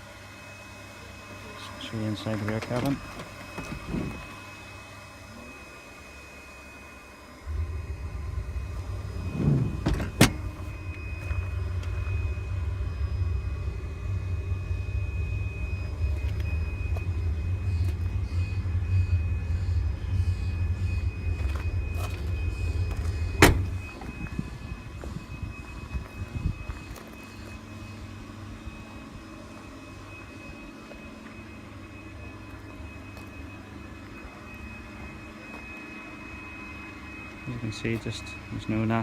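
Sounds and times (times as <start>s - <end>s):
car door shutting: 2.6s - 4.3s, 9.1s - 11.5s, 22.8s - 24.2s
steady low rumble: 7.2s - 39.0s.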